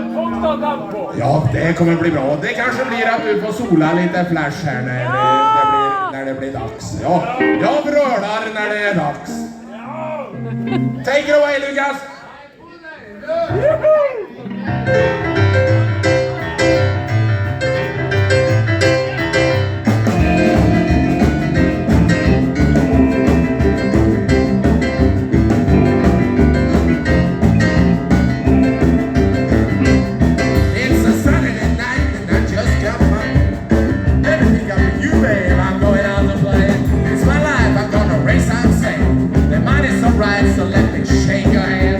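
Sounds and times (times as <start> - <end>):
rock and roll band playing: 0.0 - 6.1, 7.2 - 11.4, 13.5 - 41.9
boogie-woogie piano: 14.5 - 41.9.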